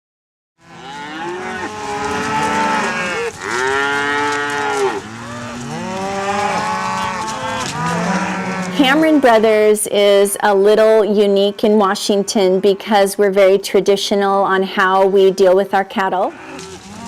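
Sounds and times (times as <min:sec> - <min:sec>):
cattle mooing: 0:00.6 - 0:10.2, 0:16.2 - 0:17.0.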